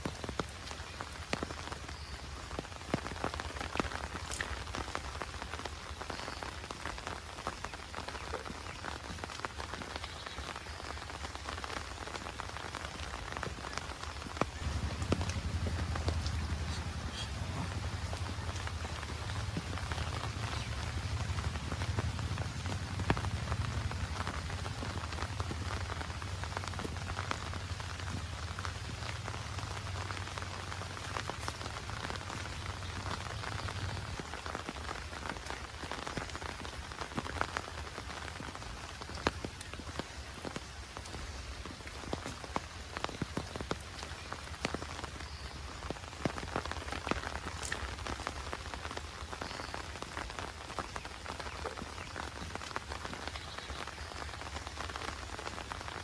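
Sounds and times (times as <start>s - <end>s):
heavy rain falling: 0.0s - 56.0s
low rumble: 14.6s - 34.2s.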